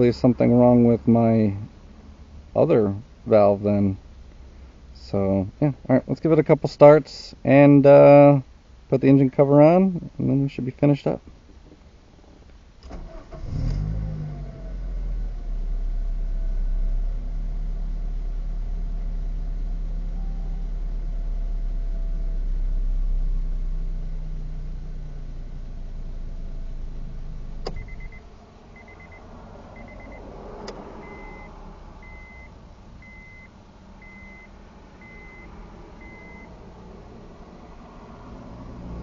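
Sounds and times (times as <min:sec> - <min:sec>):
car engine idling: 0:15.3 - 0:37.9
car warning chime beeps: 0:20.1 - 0:20.9, 0:27.7 - 0:28.2, 0:28.8 - 0:29.2, 0:29.8 - 0:30.2, 0:31.0 - 0:36.6
ignition switch click: 0:27.6 - 0:28.2.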